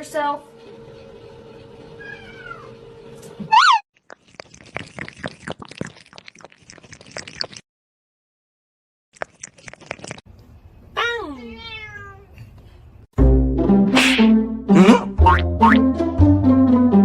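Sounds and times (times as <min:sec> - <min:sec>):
cat meowing: 0:02.0 - 0:02.7, 0:11.4 - 0:12.3.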